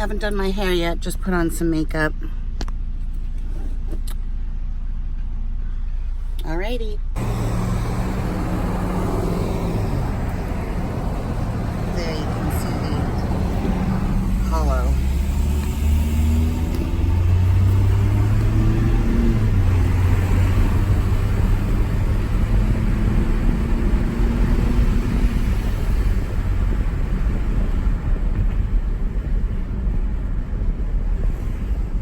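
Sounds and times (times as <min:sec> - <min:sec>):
road rumble: 0:00.0 - 0:32.0
truck engine drone: 0:07.0 - 0:32.0.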